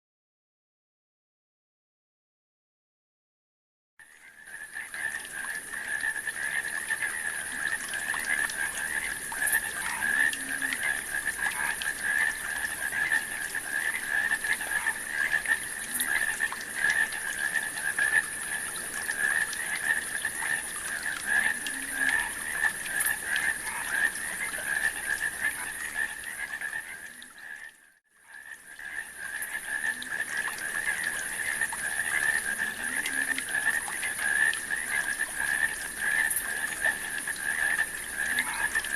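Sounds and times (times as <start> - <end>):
chorus of frogs croaking: 4.0 - 38.9.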